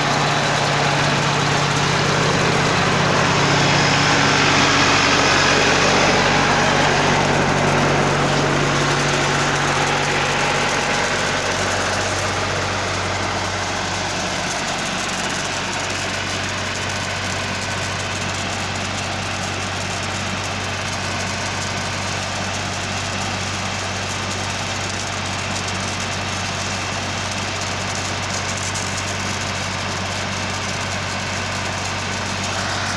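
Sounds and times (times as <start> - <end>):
tractor engine idling: 0.0 - 32.9.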